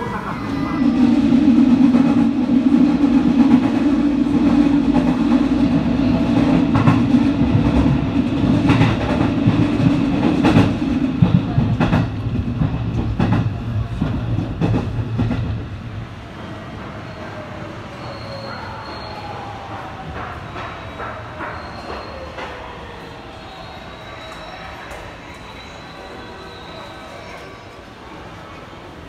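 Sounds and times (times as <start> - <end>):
train rumble inside car: 0.0 - 15.8.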